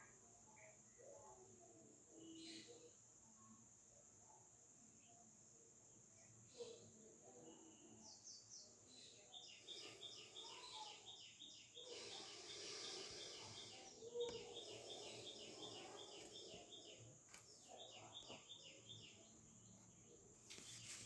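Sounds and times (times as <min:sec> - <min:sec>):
bird chirping: 0:06.2 - 0:21.0
steady high hiss: 0:09.4 - 0:21.0.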